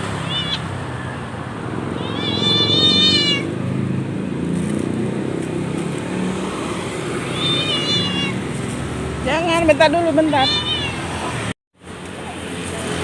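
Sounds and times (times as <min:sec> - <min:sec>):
traffic engine rumble: 0:00.0 - 0:13.0
cat meowing: 0:00.1 - 0:00.7, 0:01.9 - 0:03.5, 0:07.3 - 0:08.5, 0:10.3 - 0:11.3.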